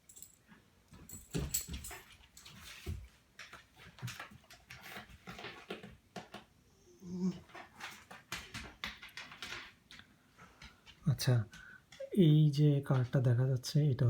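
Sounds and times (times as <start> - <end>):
dog whimpering: 6.8 - 7.5.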